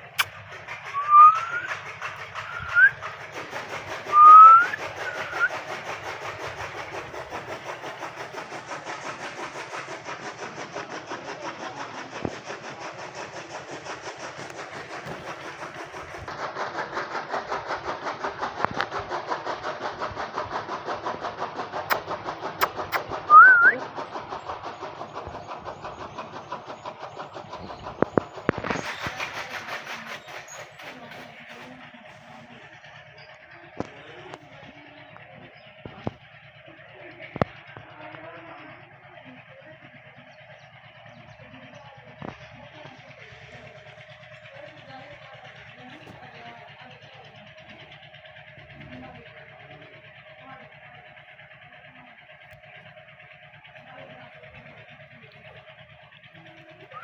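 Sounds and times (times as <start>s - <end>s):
pulsing machine-like noise: 0.0s - 57.0s
parakeet whistled calls: 0.9s - 3.0s, 4.1s - 5.5s, 22.6s - 23.8s.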